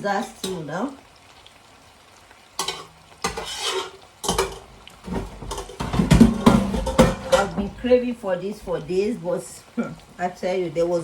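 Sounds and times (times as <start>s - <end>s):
food sizzling: 0.0s - 11.0s
spoon scraping a cooking pot: 2.6s - 7.6s.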